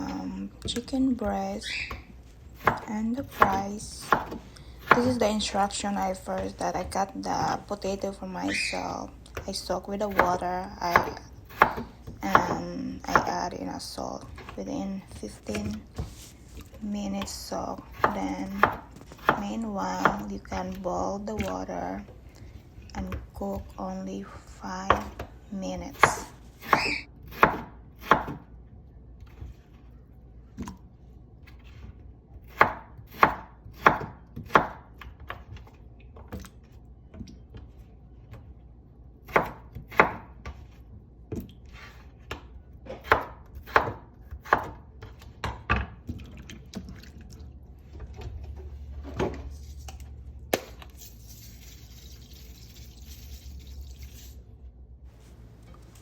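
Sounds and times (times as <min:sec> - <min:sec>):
knife chopping on cutting board: 0:02.6 - 0:05.3, 0:10.1 - 0:13.4, 0:17.9 - 0:20.2, 0:25.9 - 0:28.4, 0:32.4 - 0:35.4, 0:39.3 - 0:40.6, 0:42.3 - 0:45.8
steady hiss with low hum: 0:47.1 - 0:56.0.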